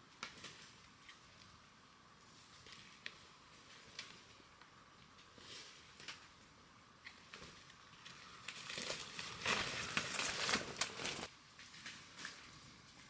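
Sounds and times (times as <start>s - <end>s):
crinkling rustling: 7.4s - 12.6s.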